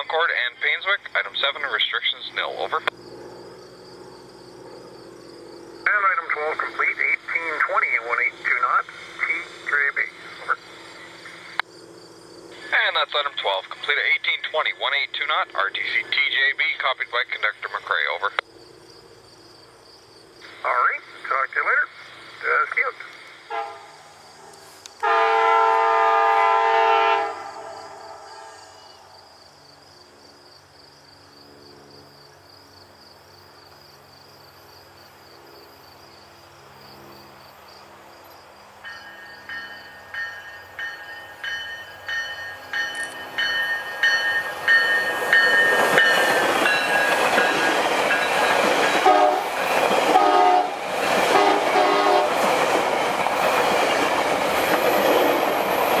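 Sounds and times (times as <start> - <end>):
train passing with loud rumble: 0.0 - 56.0
train horn chord: 23.5 - 29.0, 49.0 - 52.4
train bell ringing: 38.8 - 49.0
wheels clacking over rail joints: 38.9 - 56.0.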